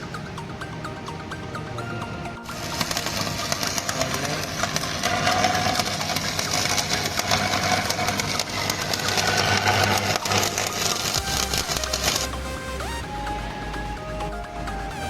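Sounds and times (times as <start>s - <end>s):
welding arc crackling: 2.4s - 14.3s.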